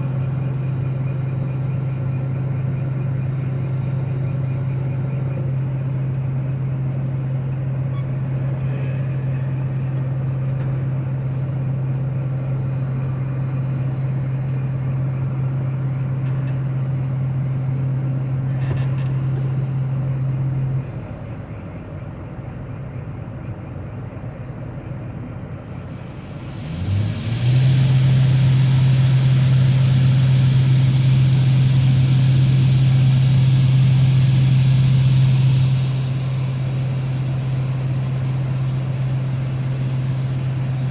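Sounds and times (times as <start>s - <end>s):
harvest machinery humming: 0.0s - 40.9s
machinery rising whine: 25.7s - 40.9s
hiss: 25.8s - 40.9s.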